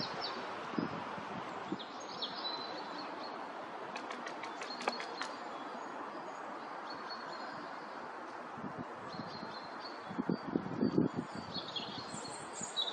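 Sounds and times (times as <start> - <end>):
outdoor background hiss: 0.0 - 12.9
small birds chirping: 4.2 - 8.1, 9.1 - 12.9.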